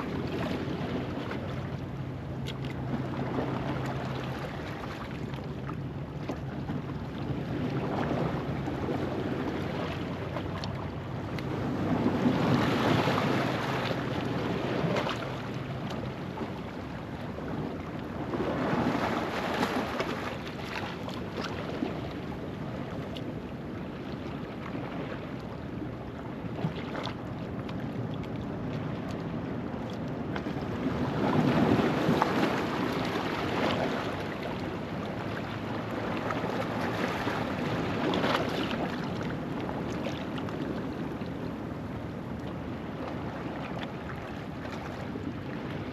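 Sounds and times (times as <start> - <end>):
ocean waves on rocky shore: 7.1 - 23.0, 30.6 - 45.9.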